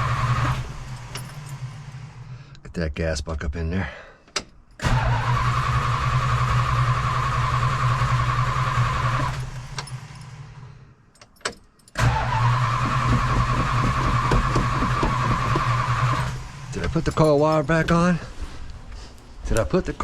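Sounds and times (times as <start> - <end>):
starter motor cranking engine: 0.0 - 2.4, 4.8 - 10.7, 12.0 - 17.2.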